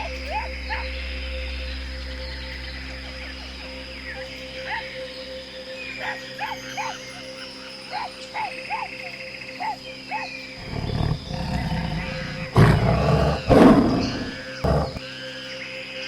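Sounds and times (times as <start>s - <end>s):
big cat roaring: 10.6s - 15.0s
low rough growl: 10.6s - 15.0s.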